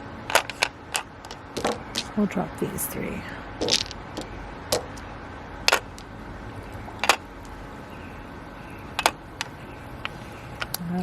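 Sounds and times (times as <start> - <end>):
mahjong tiles clacking: 0.3 - 2.2, 3.6 - 5.0, 5.6 - 6.1, 6.8 - 7.7.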